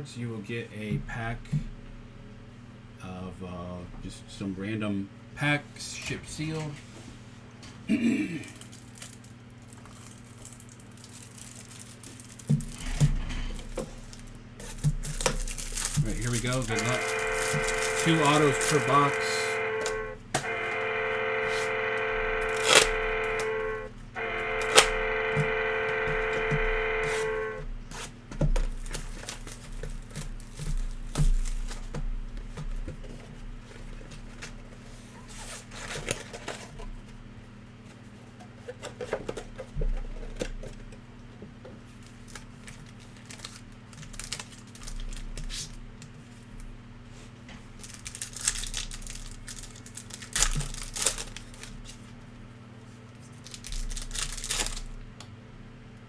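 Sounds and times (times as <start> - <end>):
card pack wrappers crinkling: 8.5 - 12.8, 14.0 - 27.6, 42.6 - 45.3, 47.8 - 52.0, 53.3 - 55.0
cards clicking and rustling: 14.6 - 23.6, 24.2 - 27.4, 47.8 - 52.0, 53.4 - 54.9
steady held tone: 16.2 - 27.6.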